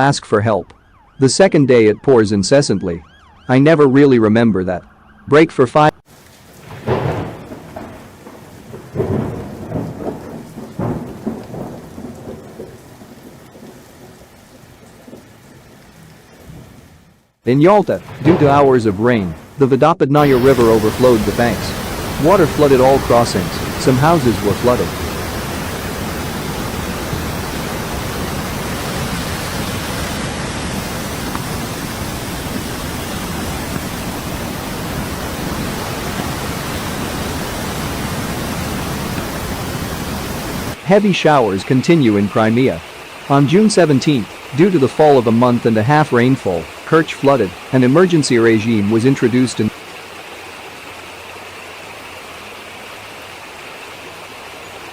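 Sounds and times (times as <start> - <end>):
floodwater rushing: 6.0 - 54.9
steady rain: 6.0 - 54.9
thunder crack and rumble: 6.6 - 15.5, 17.8 - 19.6, 20.2 - 40.9.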